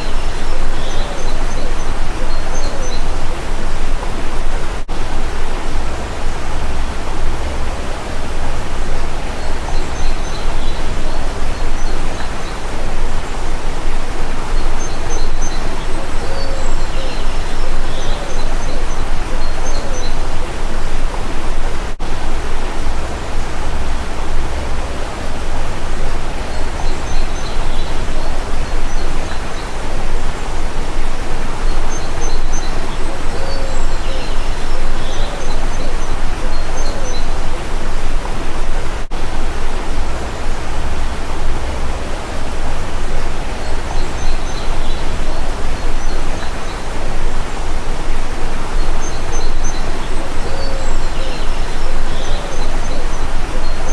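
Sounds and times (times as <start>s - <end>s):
bird chirps: 0.0s - 4.6s, 6.3s - 21.6s, 26.0s - 38.2s, 48.7s - 53.9s
stream rushing: 0.0s - 53.9s
dove cooing: 16.0s - 21.2s.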